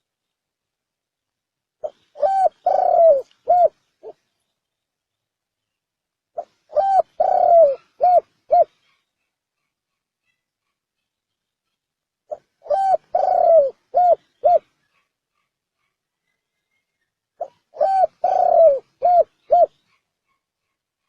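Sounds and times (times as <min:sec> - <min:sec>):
dove cooing: 0:01.8 - 0:04.2, 0:06.4 - 0:09.0, 0:12.3 - 0:14.7, 0:17.4 - 0:20.0.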